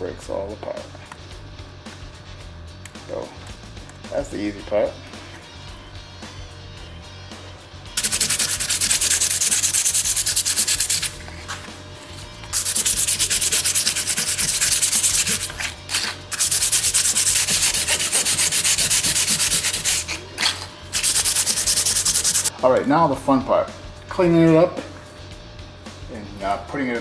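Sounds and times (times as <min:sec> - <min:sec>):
rubbing strokes by hand: 0:08.0 - 0:22.5.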